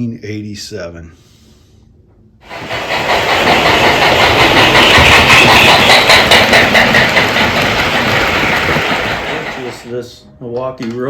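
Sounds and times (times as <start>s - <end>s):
toy train clattering: 2.4s - 10.0s.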